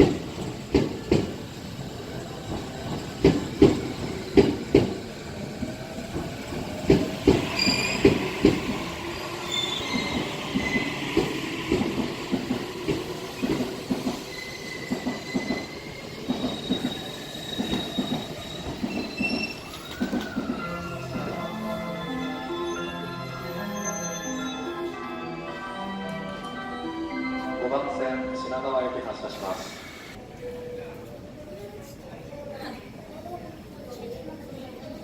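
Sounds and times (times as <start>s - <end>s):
train wheels knocking on rail joints: 0.0s - 1.4s, 2.4s - 8.9s, 9.9s - 17.0s
high wheel squeals: 7.4s - 8.4s, 9.4s - 11.7s, 14.0s - 21.3s.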